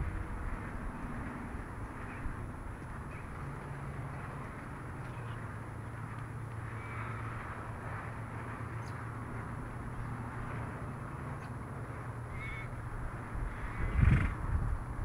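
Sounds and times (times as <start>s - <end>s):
bird calling: 6.7s - 7.4s, 12.3s - 12.8s, 13.4s - 14.3s.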